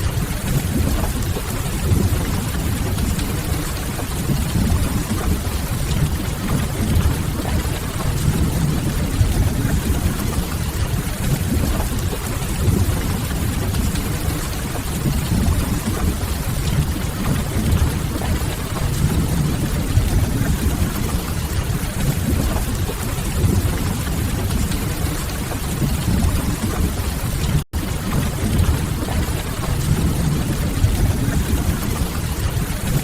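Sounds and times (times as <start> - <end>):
steady rain: 0.0 - 33.0.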